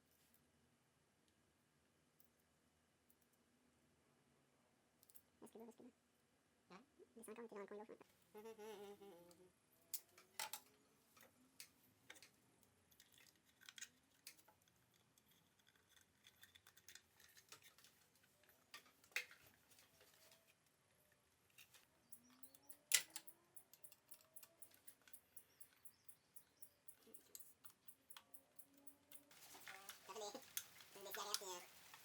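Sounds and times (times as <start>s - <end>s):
faint clicks: 9.3s - 32.0s
faint regular ticking: 22.0s - 32.0s.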